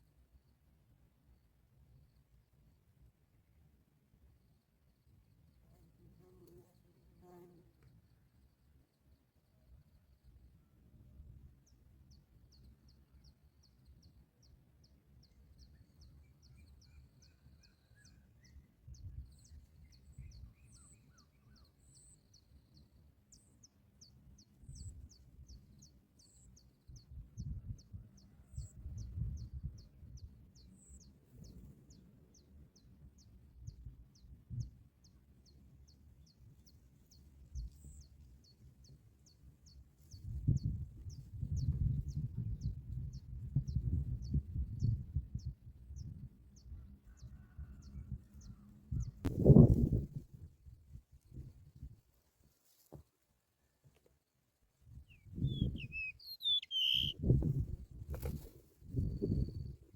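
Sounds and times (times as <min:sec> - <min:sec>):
small bird chirping: 0:55.0 - 0:59.9.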